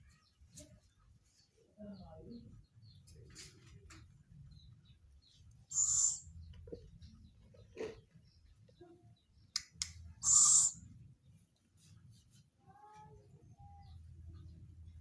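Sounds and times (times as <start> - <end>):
owl hissing calls: 5.7 - 6.2, 10.2 - 10.8.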